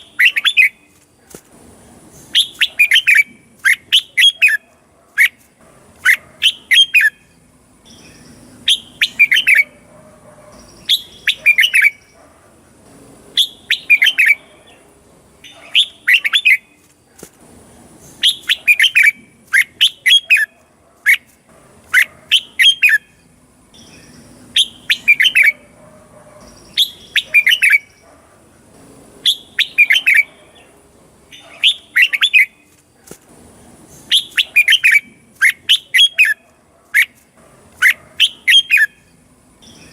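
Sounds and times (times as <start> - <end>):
bird singing warbled phrases: 0.0 - 1.0, 2.0 - 16.9, 17.9 - 21.3, 21.9 - 32.8, 33.8 - 37.2, 37.8 - 39.9.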